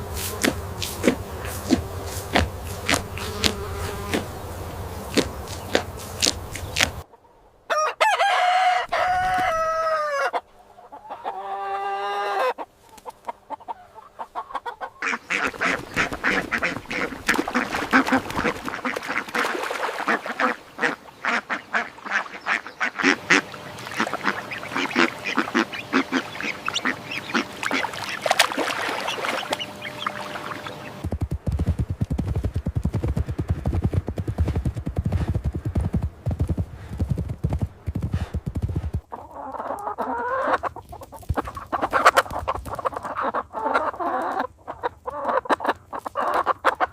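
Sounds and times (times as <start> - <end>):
poultry calling: 0.0 - 31.1, 39.1 - 46.9
low noise: 20.6 - 38.1.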